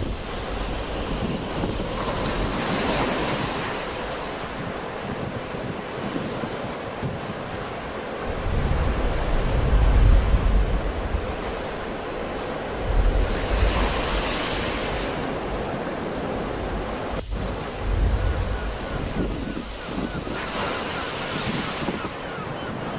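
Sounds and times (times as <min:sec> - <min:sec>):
sea waves breaking: 0:00.0 - 0:22.9
wind buffeting microphone: 0:00.0 - 0:22.9.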